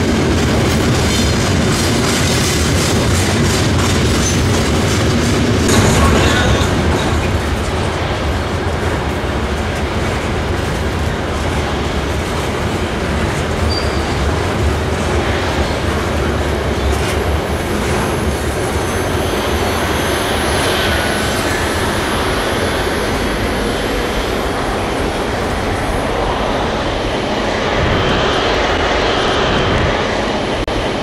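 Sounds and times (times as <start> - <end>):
freight train rumbling: 0.0 - 31.0
wheel squeal: 13.6 - 14.2.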